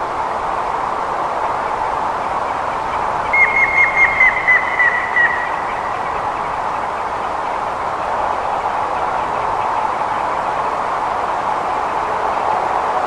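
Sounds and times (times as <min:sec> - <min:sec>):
woodpecker whistled song: 0:03.3 - 0:05.9.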